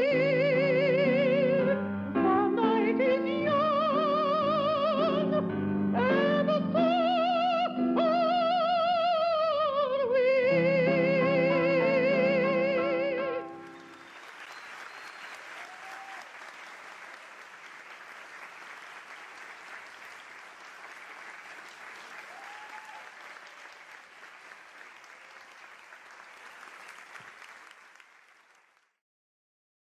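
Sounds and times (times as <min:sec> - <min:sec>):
audience applauding: 0:13.6 - 0:29.0.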